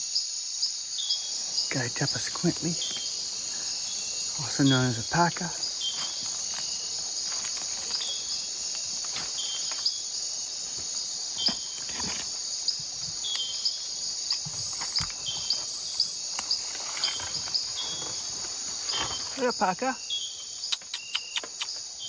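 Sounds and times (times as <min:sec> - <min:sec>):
high-pitched insect buzz: 0:00.0 - 0:22.0
insect chirps: 0:00.0 - 0:22.0
soft clicks and rustles: 0:05.4 - 0:09.9.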